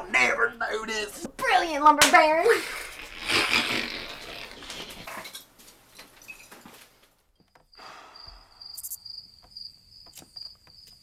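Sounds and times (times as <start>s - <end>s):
crickets chirping: 7.4s - 11.0s.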